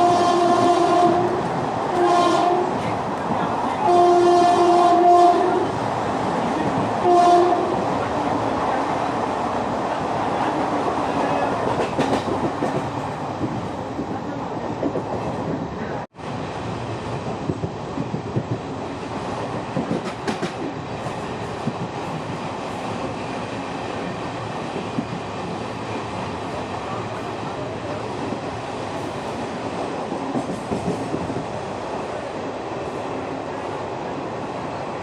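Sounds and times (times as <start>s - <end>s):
train rumble: 0.0s - 35.0s
wheels clacking over rail joints: 11.6s - 13.2s.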